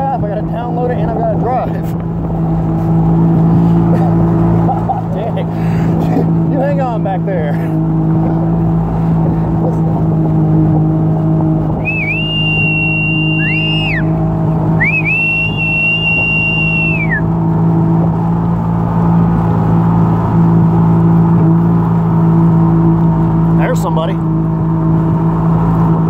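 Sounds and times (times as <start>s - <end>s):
vehicle engine droning: 0.0s - 26.0s
long high whistle tone: 11.8s - 14.2s, 14.8s - 17.3s.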